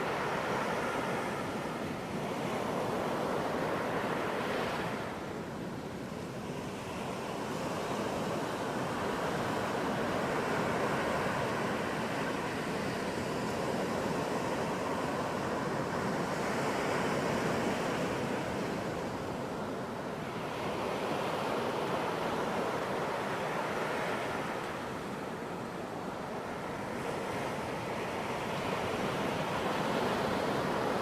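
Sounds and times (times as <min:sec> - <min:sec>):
ocean waves breaking: 0:00.0 - 0:31.0.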